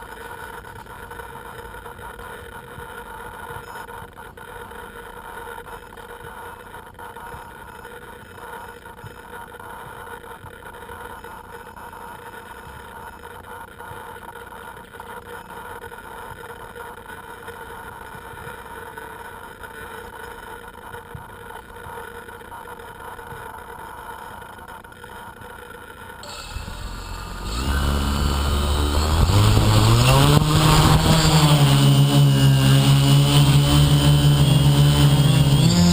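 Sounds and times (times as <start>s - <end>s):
model aircraft motors humming: 26.2s - 35.9s.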